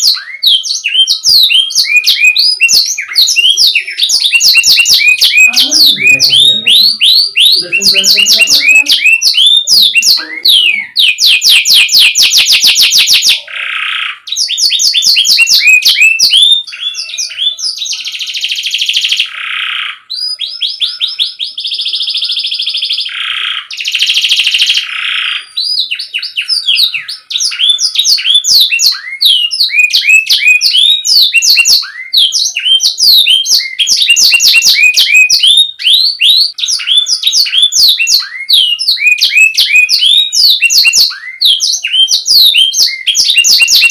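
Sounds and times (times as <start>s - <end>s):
canary singing trills: 0.0s - 43.9s.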